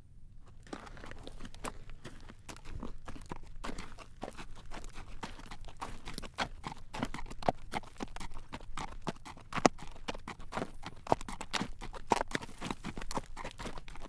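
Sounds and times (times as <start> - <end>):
horse hooves clip-clopping on road: 0.5 - 14.0.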